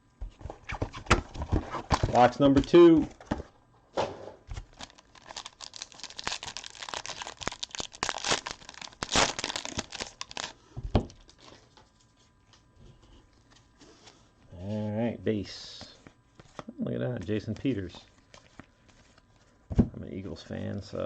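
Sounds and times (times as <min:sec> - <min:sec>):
plastic wrapping tearing and crumpling: 0:04.5 - 0:11.9.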